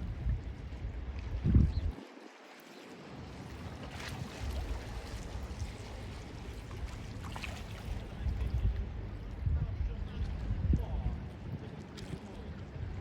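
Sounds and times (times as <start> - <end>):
sea water washing against shore: 2.0 - 8.4.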